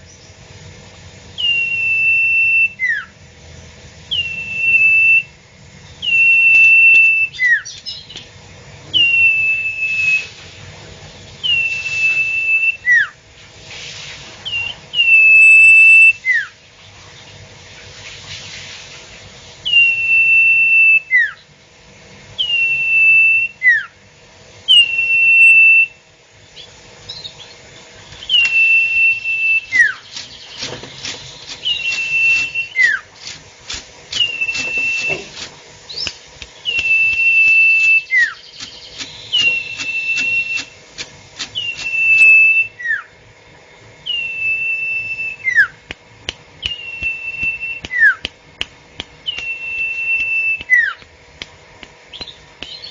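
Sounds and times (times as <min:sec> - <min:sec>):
bird whistled calls: 0:01.4 - 0:03.1, 0:04.1 - 0:05.3, 0:06.0 - 0:08.2, 0:08.9 - 0:10.4, 0:11.4 - 0:13.2, 0:14.4 - 0:16.6, 0:19.6 - 0:21.4, 0:22.4 - 0:24.0, 0:24.7 - 0:26.0, 0:26.6 - 0:33.4, 0:34.1 - 0:43.1, 0:44.0 - 0:45.8, 0:46.6 - 0:48.3, 0:49.2 - 0:51.0, 0:52.1 - 0:52.9
fast ticking: 0:38.6 - 0:42.0.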